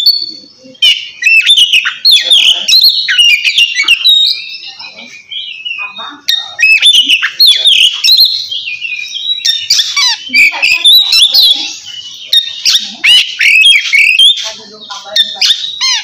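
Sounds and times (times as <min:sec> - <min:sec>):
magpie-robin singing whistles: 0:00.0 - 0:14.5.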